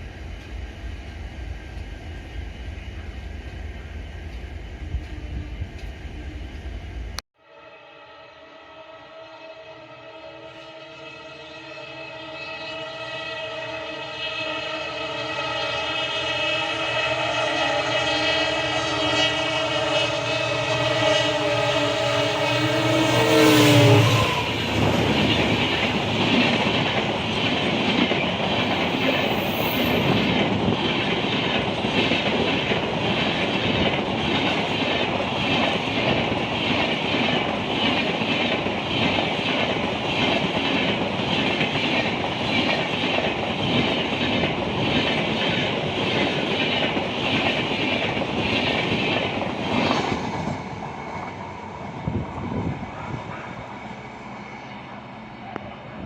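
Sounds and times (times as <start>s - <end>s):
train passing: 0.0s - 56.0s
train horn: 7.4s - 26.6s.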